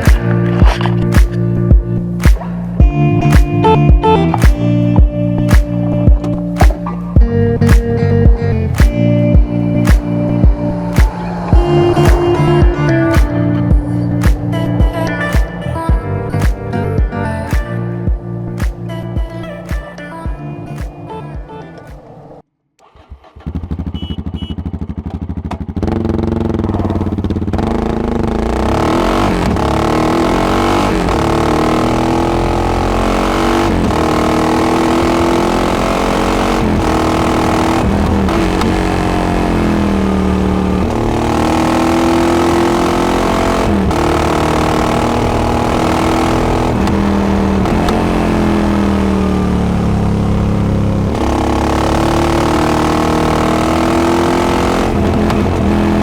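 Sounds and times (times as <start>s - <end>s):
motorcycle engine revving through gears: 0.0s - 17.8s, 21.9s - 56.0s.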